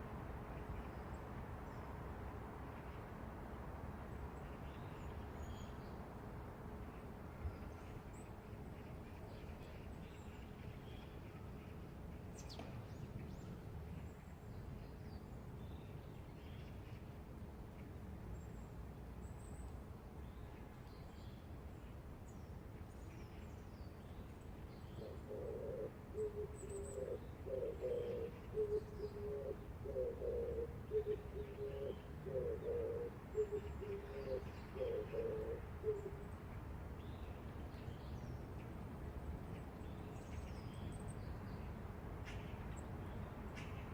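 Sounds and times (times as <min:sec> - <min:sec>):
pigeon cooing: 0:25.2 - 0:36.2.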